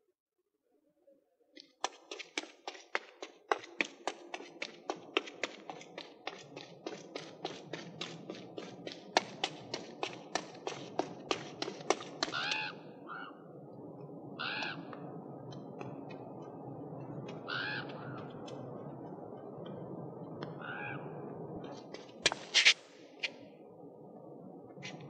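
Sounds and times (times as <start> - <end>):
outdoor background hum: 1.6 - 25.0
boot footsteps on paving: 1.8 - 12.6
bird cawing: 12.2 - 13.4, 14.4 - 14.9, 17.4 - 18.3, 20.6 - 21.1.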